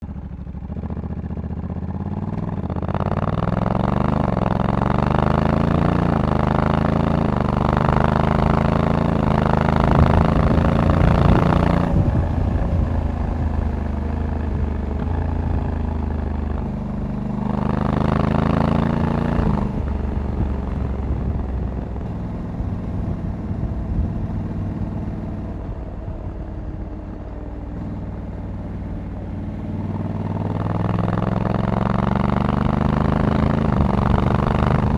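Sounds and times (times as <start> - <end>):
motorcycle engine accelerating: 0.0 - 34.9
wind rush: 9.1 - 16.0, 19.4 - 27.4.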